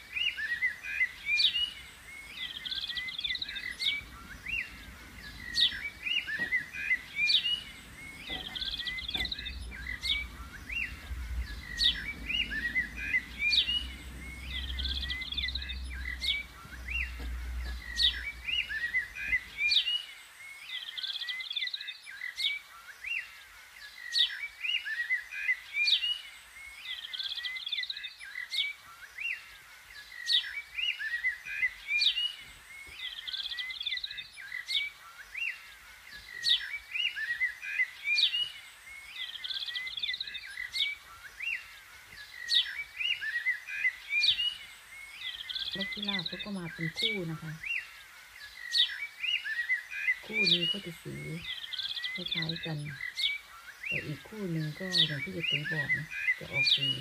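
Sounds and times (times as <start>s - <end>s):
songbird chirping: 0.0s - 57.0s
low rumble: 7.1s - 19.2s.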